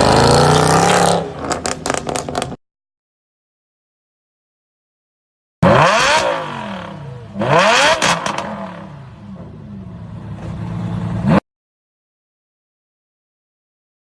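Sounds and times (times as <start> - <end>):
car engine revving: 0.0 - 2.6, 5.6 - 11.4
exhaust cracks: 0.0 - 2.6.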